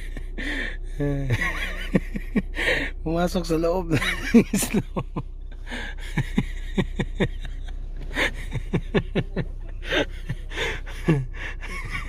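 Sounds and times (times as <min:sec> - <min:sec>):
person laughing: 0:00.0 - 0:03.0, 0:03.9 - 0:12.0
gasping breaths: 0:05.6 - 0:06.1, 0:09.8 - 0:11.7.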